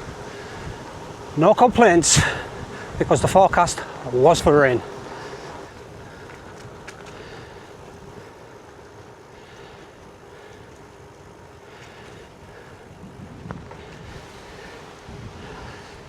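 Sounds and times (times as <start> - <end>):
wind rush over microphone: 0.0 - 8.4, 12.2 - 16.0
bike tyres on road: 0.0 - 16.0
faint steady hum: 0.0 - 16.0
bike click: 5.5 - 12.4.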